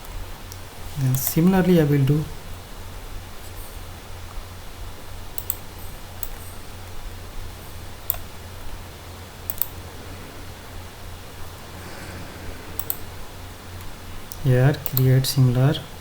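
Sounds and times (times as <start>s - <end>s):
low hum: 2.0s - 15.0s
mouse and keyboard clicks: 5.4s - 5.6s, 12.8s - 13.0s.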